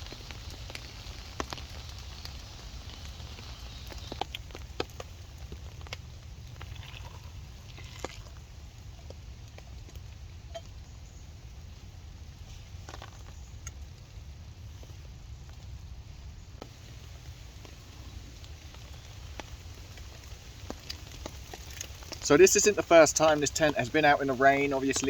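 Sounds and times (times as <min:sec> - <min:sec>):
raindrops tapping on a surface: 0:00.0 - 0:10.9, 0:16.6 - 0:25.0
steady rain falling: 0:00.0 - 0:25.0.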